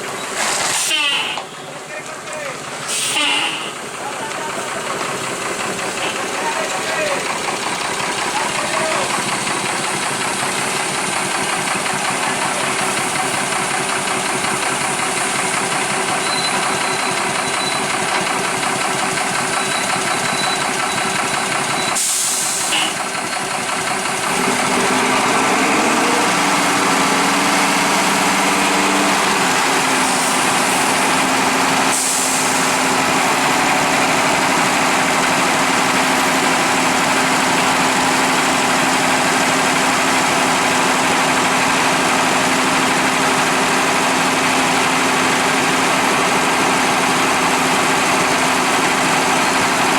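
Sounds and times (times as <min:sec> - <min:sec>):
diesel engines idling: 0:00.0 - 0:49.9
engine revving: 0:23.7 - 0:49.9.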